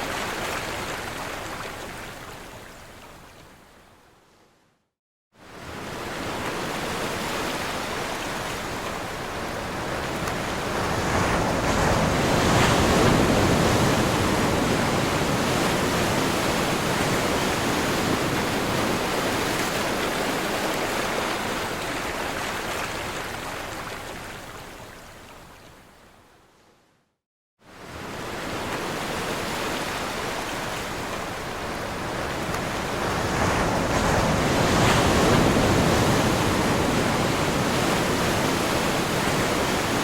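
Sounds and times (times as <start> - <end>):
ocean waves crashing: 5.6 - 22.8, 27.8 - 40.0.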